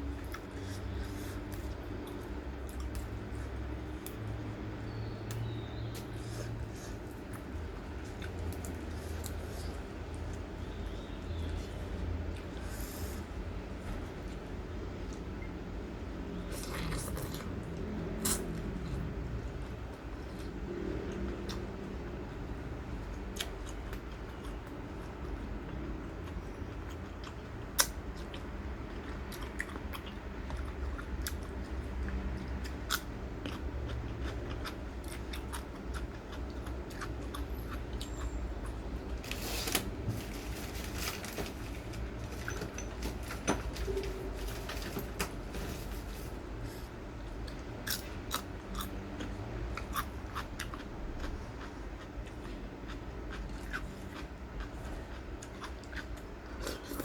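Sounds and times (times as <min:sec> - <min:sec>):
person chewing crunchy food: 0:16.4 - 0:39.5, 0:40.3 - 0:57.0.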